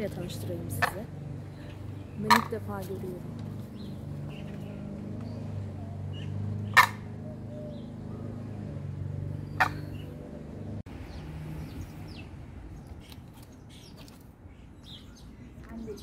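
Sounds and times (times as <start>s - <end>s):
short sharp bird calls: 9.5s - 10.2s.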